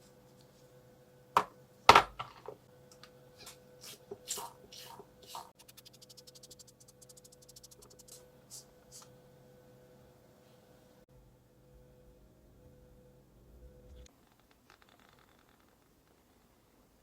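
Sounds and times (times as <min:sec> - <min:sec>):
faint steady hum: 0:00.0 - 0:17.0
fast run of clicks: 0:05.6 - 0:08.1.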